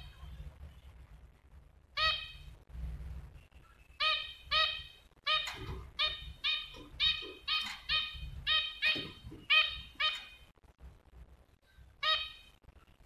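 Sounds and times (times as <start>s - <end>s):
small bird call notes: 2.0s - 2.6s, 3.4s - 10.6s, 11.7s - 12.7s.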